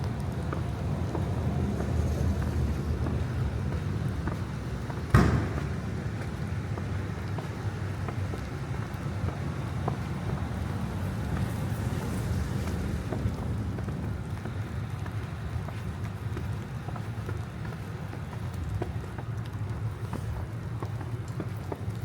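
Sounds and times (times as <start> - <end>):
city street rumble: 0.0 - 22.0
sharp thump: 5.1 - 5.8.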